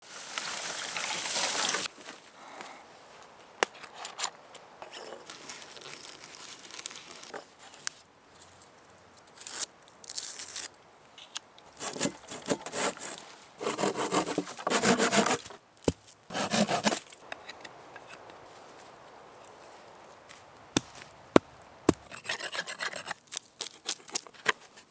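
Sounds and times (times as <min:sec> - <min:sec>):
rasping strokes on wood: 0:11.8 - 0:15.4, 0:16.3 - 0:17.0, 0:21.9 - 0:23.1
handling knocks and rustles: 0:16.8 - 0:24.9.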